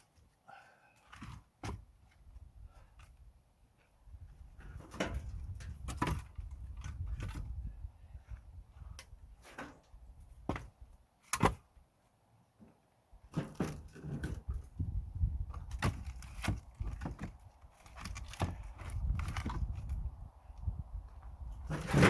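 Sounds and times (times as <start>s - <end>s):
firewood logs knocking together: 1.0s - 2.2s, 4.6s - 7.6s, 9.4s - 11.7s, 13.3s - 14.7s, 15.4s - 20.1s, 21.6s - 22.0s.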